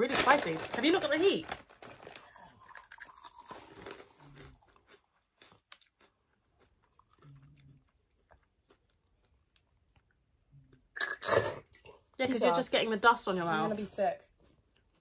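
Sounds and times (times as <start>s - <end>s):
crunchy snack being chewed: 1.8s - 10.1s.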